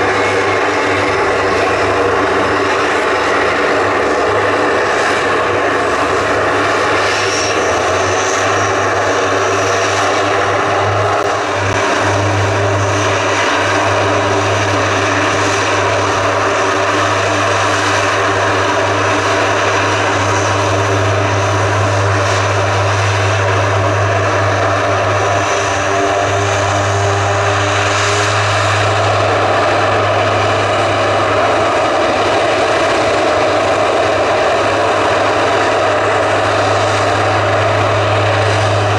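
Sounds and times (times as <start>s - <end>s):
propeller aircraft engines droning: 0.0s - 38.9s.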